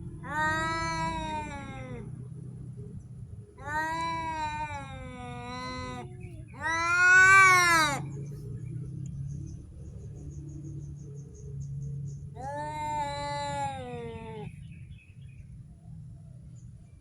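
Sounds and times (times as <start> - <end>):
cat yowling: 0.2 - 2.1, 3.6 - 8.1, 12.4 - 14.5.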